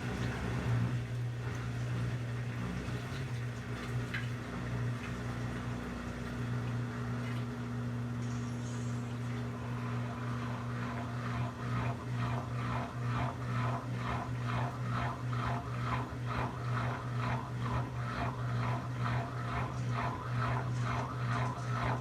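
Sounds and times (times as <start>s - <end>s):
washing machine motor hum: 0.0s - 22.0s
water and clothes swishing: 2.7s - 7.8s.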